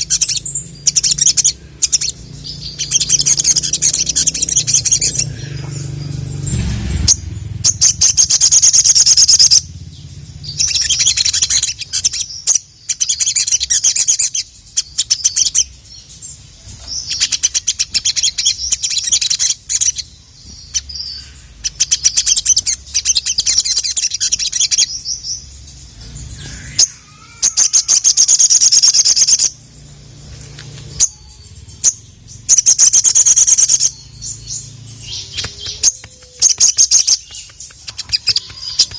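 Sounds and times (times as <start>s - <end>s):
bird high-pitched trills: 0.0s - 30.0s, 30.7s - 38.9s
bird clicking chips: 35.1s - 38.9s.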